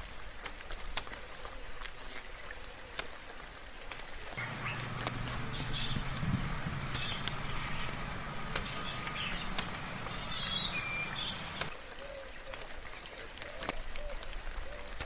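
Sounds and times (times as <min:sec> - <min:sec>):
soft rain hissing: 0:00.2 - 0:15.0
sharp drips: 0:04.3 - 0:11.7
birds chirping: 0:04.4 - 0:11.7.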